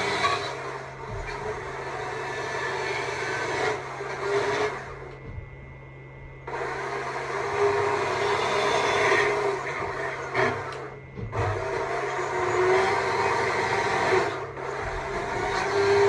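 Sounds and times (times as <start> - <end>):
chainsaw carving wood: 6.5 - 16.0.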